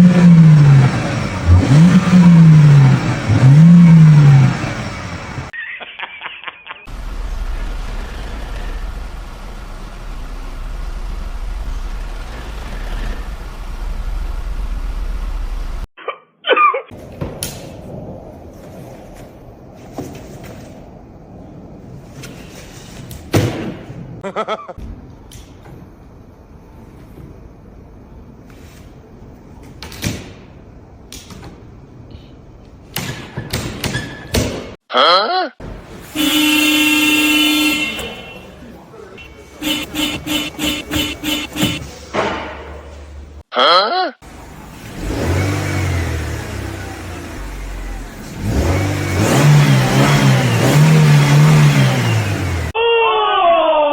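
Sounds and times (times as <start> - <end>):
vehicle engine low rumble: 0.0 - 5.6, 6.9 - 15.9, 35.6 - 43.4, 44.3 - 52.8.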